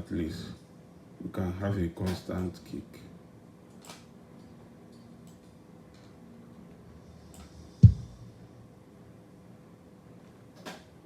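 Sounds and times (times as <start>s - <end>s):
kick drum hit: 7.8s - 8.3s.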